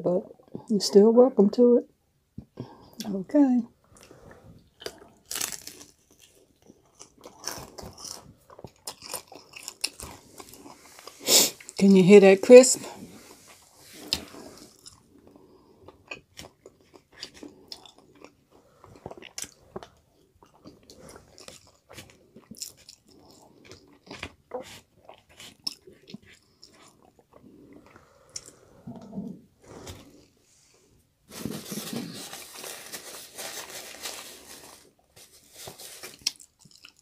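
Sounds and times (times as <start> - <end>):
chewing crispy fried chicken: 3.9 - 11.8, 13.3 - 28.6, 36.0 - 37.0.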